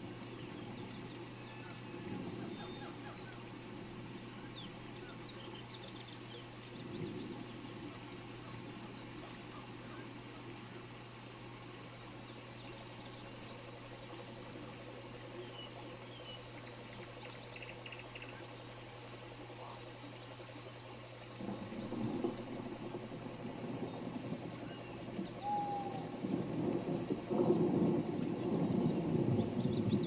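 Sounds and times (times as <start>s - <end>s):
distant thunder rumble: 0.0s - 5.2s, 6.3s - 10.9s, 21.3s - 30.0s
steady rain hiss: 0.0s - 30.0s
faint bird chirps: 0.3s - 3.6s, 4.2s - 10.9s, 11.9s - 22.5s, 23.7s - 26.3s.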